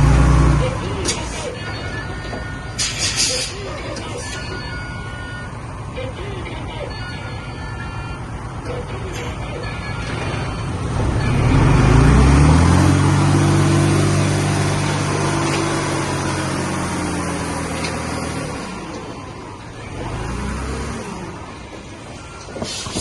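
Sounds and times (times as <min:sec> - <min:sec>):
heavy diesel engine revving: 0:00.0 - 0:01.2, 0:10.0 - 0:23.0.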